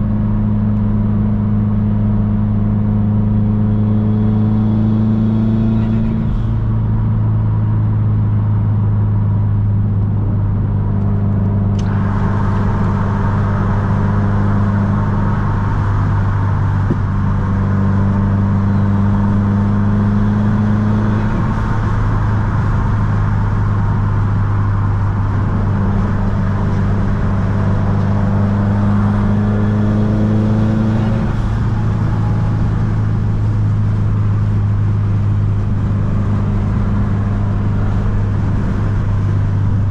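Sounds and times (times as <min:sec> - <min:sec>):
car engine and exhaust droning: 0:00.0 - 0:39.9
road and wind noise: 0:00.0 - 0:39.9.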